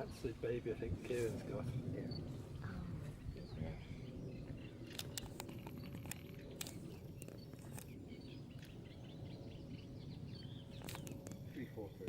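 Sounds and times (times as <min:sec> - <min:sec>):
small birds chirping: 0:00.0 - 0:12.0
steady low rumble: 0:00.0 - 0:12.0
sharp clicks: 0:04.8 - 0:08.0, 0:10.8 - 0:11.4.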